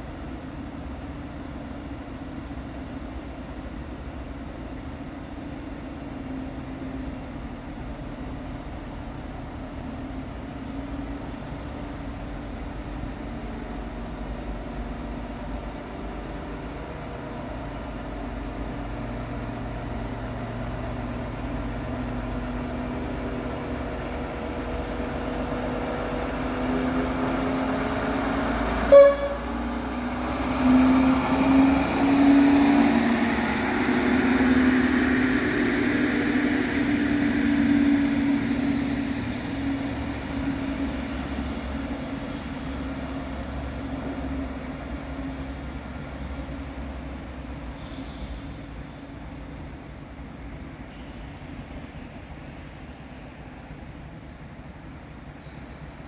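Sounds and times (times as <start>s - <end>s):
diesel train engine and wheels: 0.0s - 56.0s
train horn toot: 28.8s - 29.7s.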